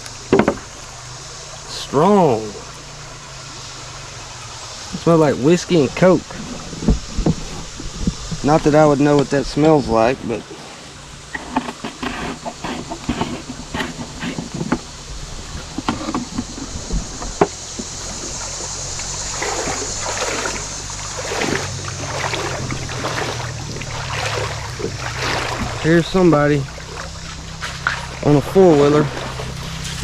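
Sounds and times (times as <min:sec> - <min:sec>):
water splashes: 0:00.0 - 0:30.0
knocks: 0:00.3 - 0:00.6
atv engine running: 0:11.0 - 0:30.0.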